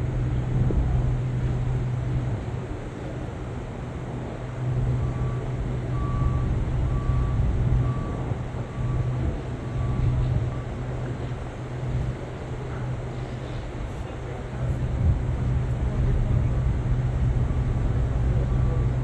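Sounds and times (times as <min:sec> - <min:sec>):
low engine hum: 0:00.0 - 0:19.0
reversing alarm beeping: 0:05.0 - 0:10.8.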